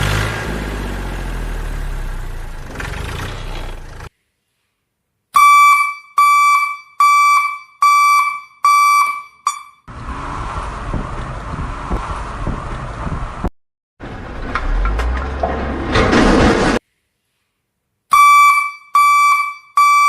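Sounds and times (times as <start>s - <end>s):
electronic beeper beeping: 5.4s - 9.8s.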